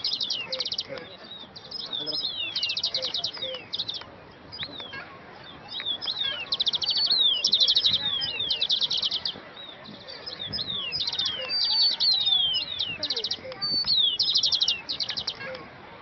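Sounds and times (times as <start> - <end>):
songbird trills: 0.0 - 15.7.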